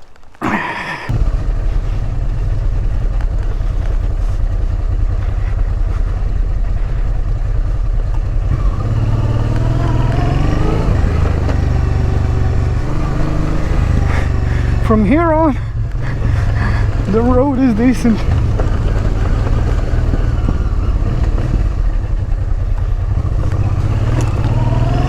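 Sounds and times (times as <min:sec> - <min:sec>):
motorcycle engine accelerating: 0:01.1 - 0:25.0.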